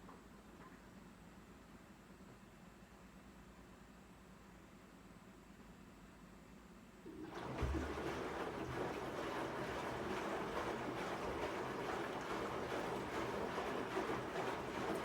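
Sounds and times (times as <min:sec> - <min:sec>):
washing machine running: 0:07.1 - 0:15.0
water rushing: 0:07.1 - 0:15.0.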